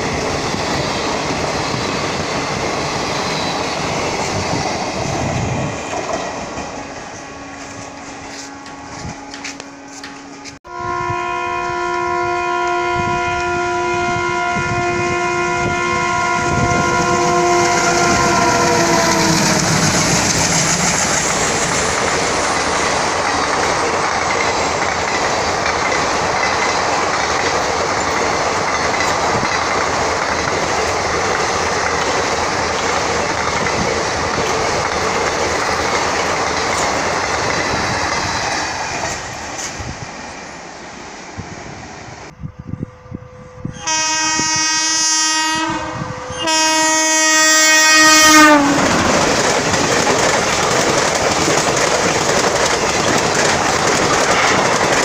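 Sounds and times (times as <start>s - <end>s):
train wheel clatter: 0.0s - 10.6s, 17.7s - 40.0s, 48.6s - 55.0s
multi-tone locomotive horn: 6.8s - 20.9s, 42.4s - 49.2s.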